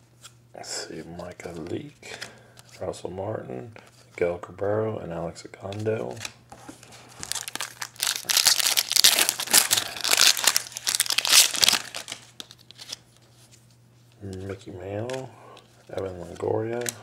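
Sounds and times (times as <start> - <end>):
foil wrapper tearing and crinkling: 7.2 - 13.0.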